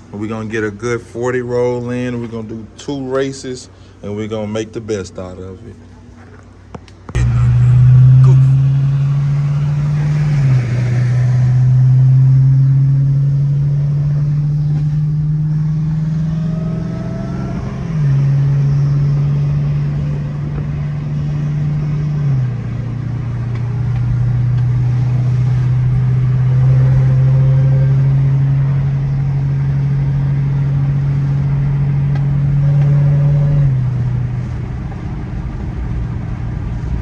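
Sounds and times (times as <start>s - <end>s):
car engine droning: 0.0s - 37.0s.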